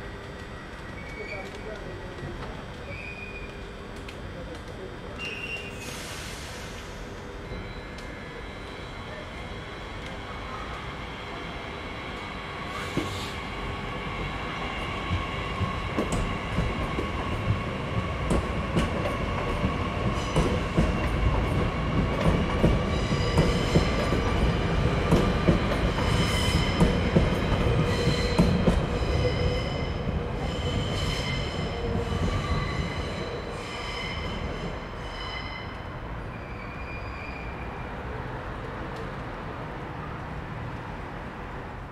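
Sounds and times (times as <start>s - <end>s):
commuter train rumbling past: 0.0s - 41.9s
train wheels squealing: 5.2s - 9.2s, 12.7s - 13.4s, 27.9s - 37.9s.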